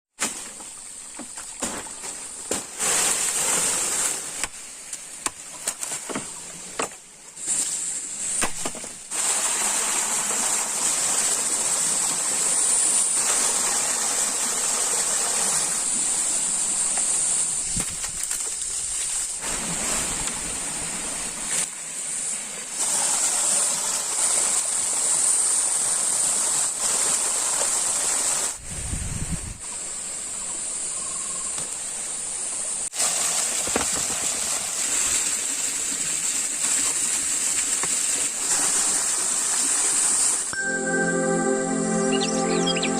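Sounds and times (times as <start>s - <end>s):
stream water rushing: 9.0s - 16.9s
high-pitched hiss: 15.0s - 19.4s.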